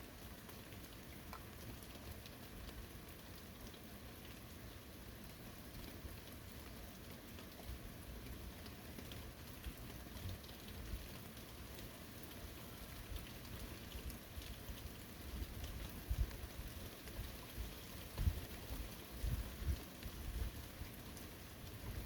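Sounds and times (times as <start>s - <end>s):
steady rain: 0.0s - 22.0s
raindrop ticks: 0.1s - 22.0s.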